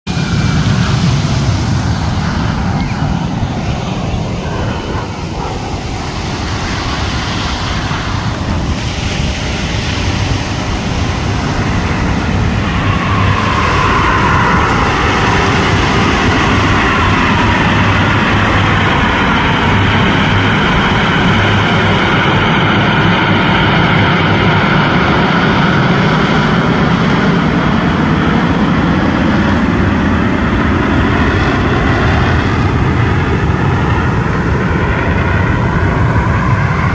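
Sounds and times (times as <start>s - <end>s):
jet whine sliding down in pitch: 0.1s - 29.6s
jet engines passing: 0.1s - 36.9s.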